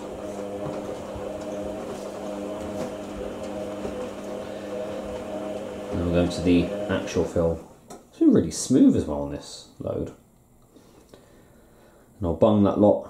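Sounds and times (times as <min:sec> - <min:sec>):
washing machine hum: 0:00.0 - 0:07.8.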